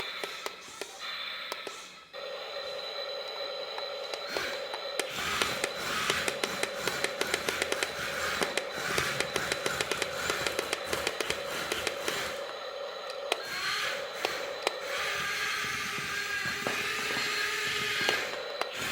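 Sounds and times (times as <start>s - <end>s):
toy electric motor whining: 0.0s - 18.9s.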